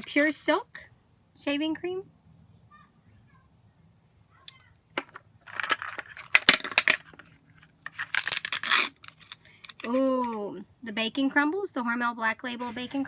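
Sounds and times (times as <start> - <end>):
plastic packaging crinkling: 5.4 - 10.0.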